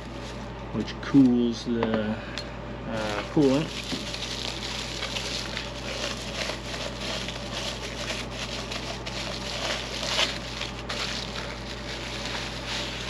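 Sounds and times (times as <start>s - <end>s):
packaging rustling and crackling: 2.9s - 13.0s.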